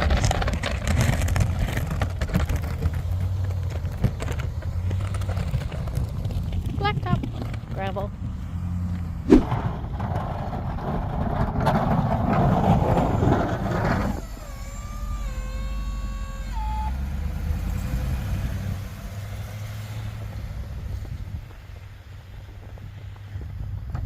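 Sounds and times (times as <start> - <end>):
truck engine running: 0.0 - 24.0
loud rushing noise: 9.2 - 10.2.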